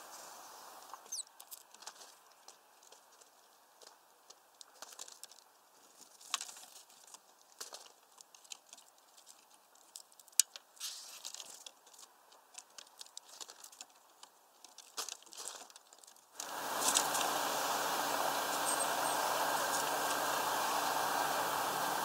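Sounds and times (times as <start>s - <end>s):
steady rushing noise: 16.4s - 22.0s.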